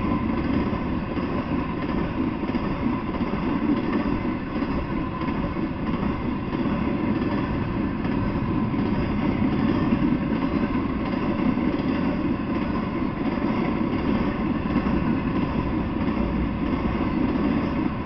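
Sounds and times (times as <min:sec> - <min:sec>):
train wheels rolling on rail: 0:00.0 - 0:18.0.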